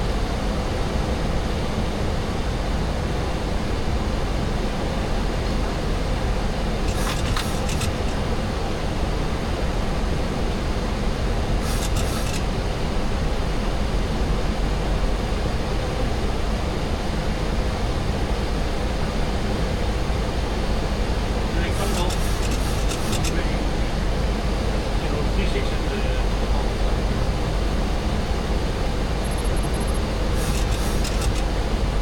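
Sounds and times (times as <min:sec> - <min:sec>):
cockpit air and engine rush: 0:05.0 - 0:08.8, 0:11.4 - 0:13.0, 0:19.5 - 0:32.0.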